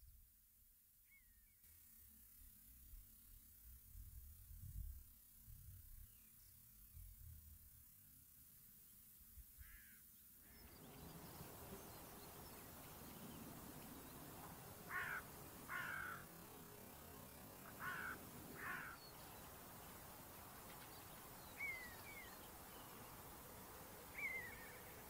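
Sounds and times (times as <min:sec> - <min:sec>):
faint outdoor background: 0:00.0 - 0:25.0
bird calling: 0:14.1 - 0:16.3, 0:17.6 - 0:19.4, 0:20.7 - 0:23.0, 0:24.1 - 0:25.0.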